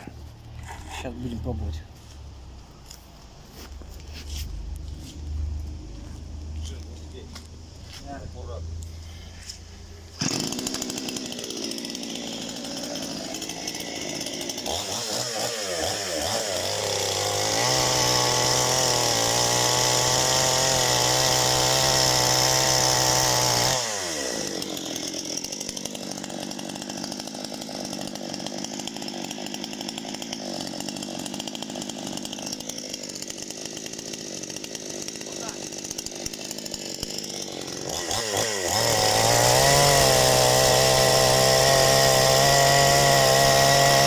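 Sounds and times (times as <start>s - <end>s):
chainsaw starting and revving: 8.8s - 44.0s.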